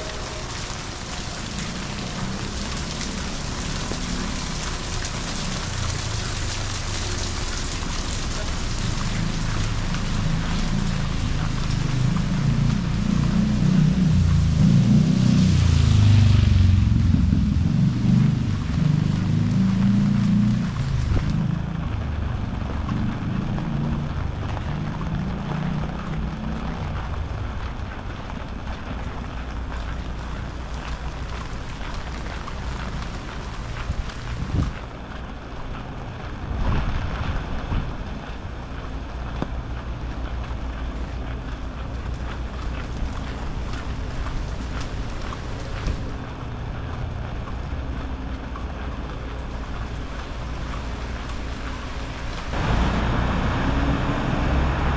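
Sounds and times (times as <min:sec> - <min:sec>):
low rumble: 0:00.0 - 0:25.2
raindrops ticking on camera: 0:00.0 - 0:54.9
steady rain hissing: 0:00.0 - 0:54.9.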